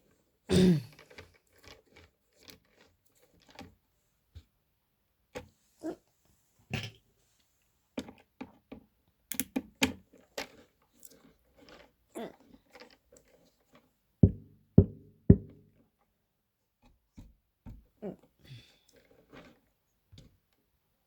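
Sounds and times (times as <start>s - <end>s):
loud knocks with low ringing: 14.2s - 15.6s.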